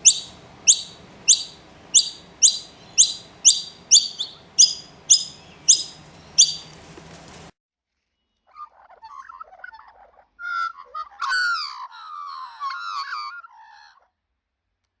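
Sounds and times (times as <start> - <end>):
baby bird high chirps: 0.0 - 7.5
chick squawking calls: 0.0 - 7.5.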